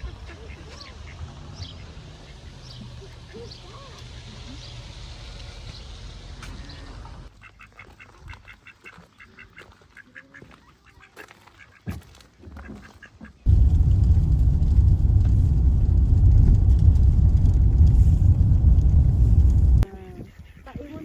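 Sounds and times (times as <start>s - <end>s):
ducks quacking: 0.0s - 4.0s
low steady hum: 13.5s - 19.8s.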